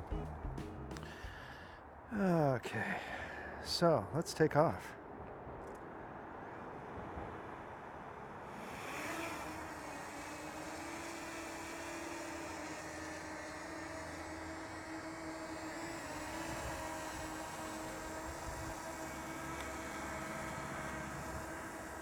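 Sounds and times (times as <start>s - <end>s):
drone propellers buzzing: 0.0s - 1.6s, 8.4s - 22.0s.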